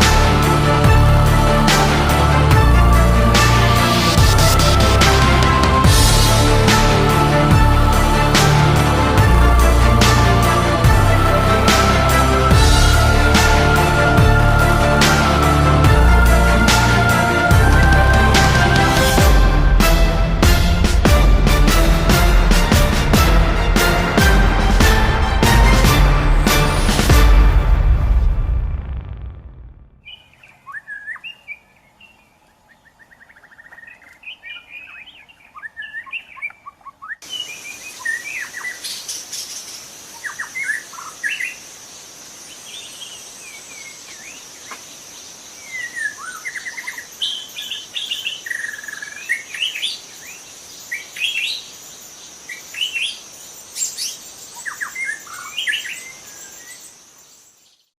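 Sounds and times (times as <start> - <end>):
birds chirping: 30.0 - 57.9.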